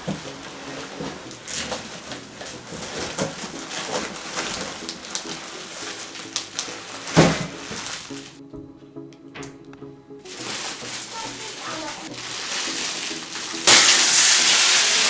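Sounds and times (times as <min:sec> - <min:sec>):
cardboard and plastic rustling: 0:00.0 - 0:08.4, 0:09.4 - 0:15.0
packaging thump: 0:00.0 - 0:08.4, 0:10.3 - 0:15.0
quiet background music: 0:00.0 - 0:15.0.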